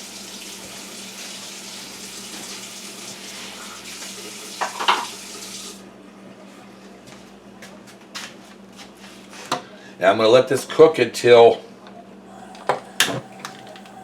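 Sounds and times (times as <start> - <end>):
water running from tap: 0.0 - 5.8, 12.3 - 14.0.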